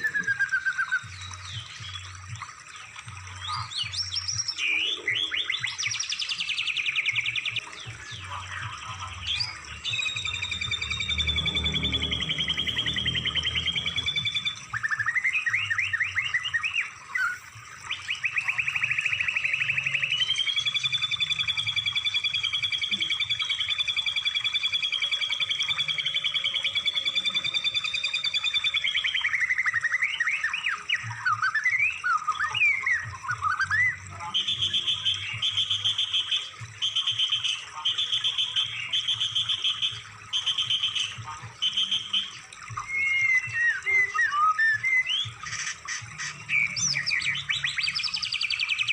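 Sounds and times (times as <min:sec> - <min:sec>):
songbird trills and whistles: 0:00.0 - 0:48.9.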